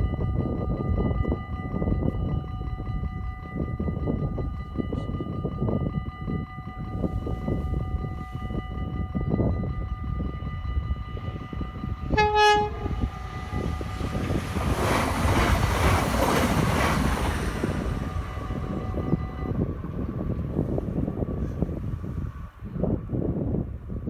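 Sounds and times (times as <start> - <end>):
train rushing past: 11.2 - 20.8
train horn blast: 12.0 - 14.3.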